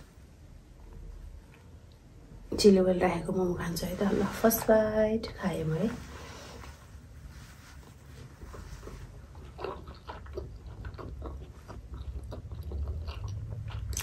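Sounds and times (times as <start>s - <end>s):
low steady hum: 0.0s - 14.0s
person chewing: 7.8s - 14.0s.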